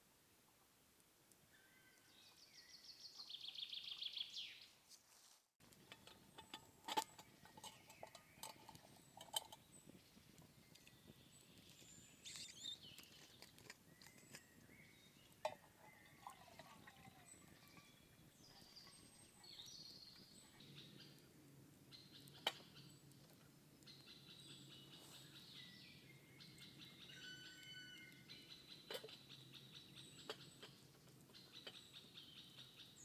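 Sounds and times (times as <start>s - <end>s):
birds chirping and trilling: 5.8s - 21.2s, 23.8s - 33.0s.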